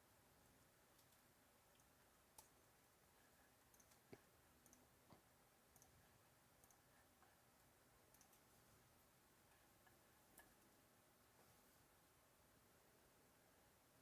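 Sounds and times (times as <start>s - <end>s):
faint clicks: 0.9s - 2.6s, 3.6s - 6.0s, 6.6s - 8.5s.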